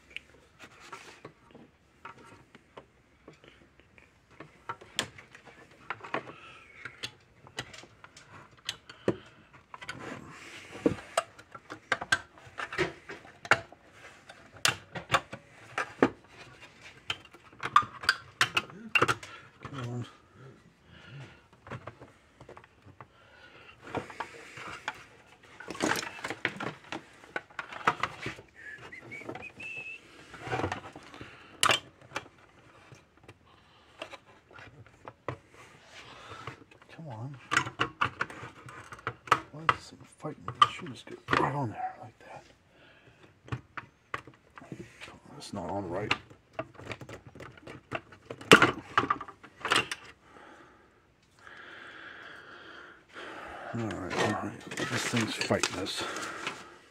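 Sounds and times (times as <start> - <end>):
parts clicking and knocking: 10.8 - 20.3, 46.0 - 50.2.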